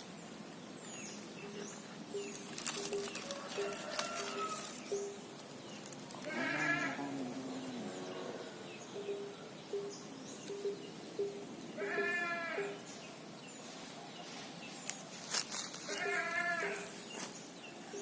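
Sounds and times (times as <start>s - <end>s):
animal bleating: 6.2s - 8.5s, 11.8s - 12.8s, 15.9s - 17.0s.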